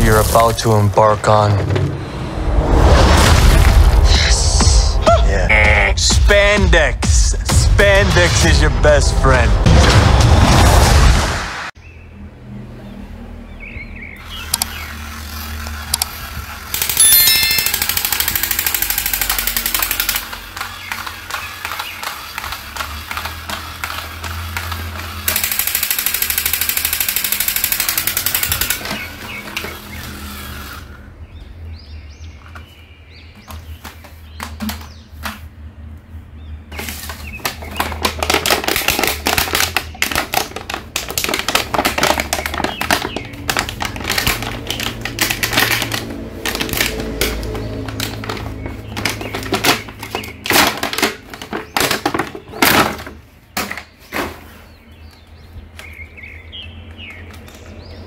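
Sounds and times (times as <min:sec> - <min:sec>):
music: 0:04.7 - 0:10.7
toy gear clicks: 0:14.2 - 0:31.0
toy gunfire rattle: 0:15.4 - 0:29.7.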